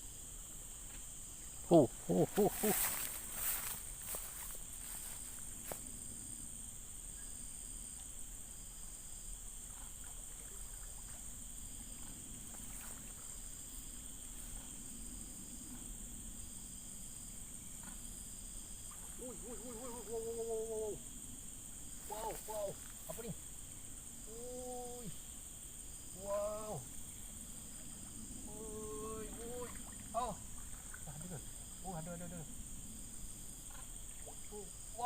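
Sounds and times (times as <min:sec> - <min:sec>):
short insect chirp: 0:00.0 - 0:35.0
high-pitched insect drone: 0:01.2 - 0:35.0.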